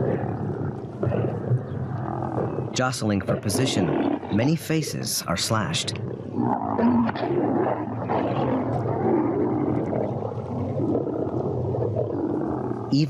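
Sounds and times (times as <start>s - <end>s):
lions growling and snarling: 0.0s - 13.0s.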